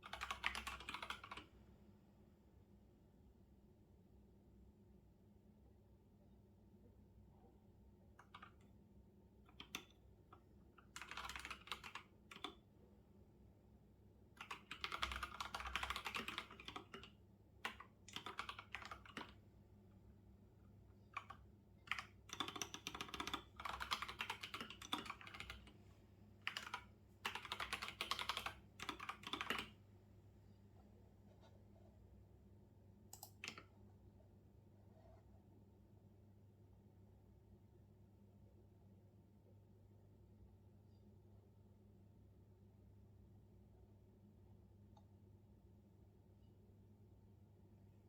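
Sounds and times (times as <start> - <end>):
typing on keyboard: 0.0 - 1.5, 8.2 - 8.7, 9.5 - 12.6, 14.4 - 19.4, 21.1 - 25.7, 26.4 - 29.8, 33.1 - 33.7.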